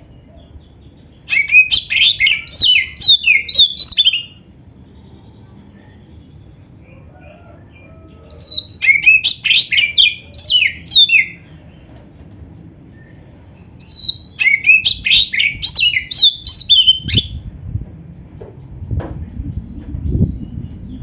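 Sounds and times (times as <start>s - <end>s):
bird whistles and trills: 1.2s - 4.4s, 8.3s - 11.4s, 13.8s - 17.4s.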